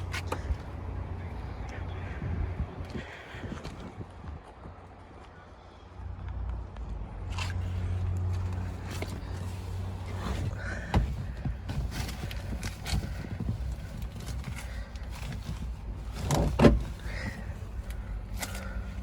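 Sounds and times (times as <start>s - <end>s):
car door clicks and knocks: 16.2s - 16.9s.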